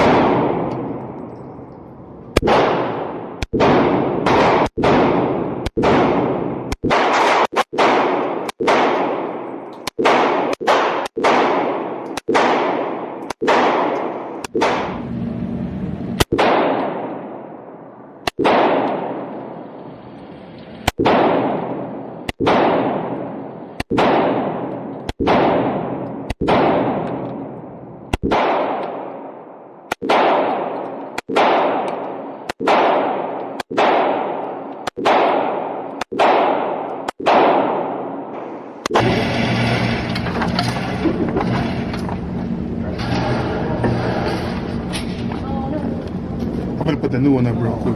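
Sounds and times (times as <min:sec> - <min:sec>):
pistol shots echoing: 0:00.0 - 0:01.6, 0:02.3 - 0:15.0, 0:16.2 - 0:17.6, 0:18.2 - 0:19.8, 0:20.9 - 0:39.2.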